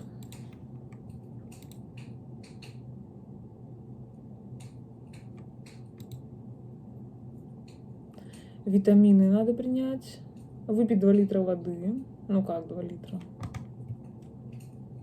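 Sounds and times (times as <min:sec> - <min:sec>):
faint irregular clicks and crackles: 0:00.0 - 0:02.9, 0:04.5 - 0:06.2, 0:07.6 - 0:08.5, 0:13.1 - 0:15.0
low steady hum: 0:00.0 - 0:15.0.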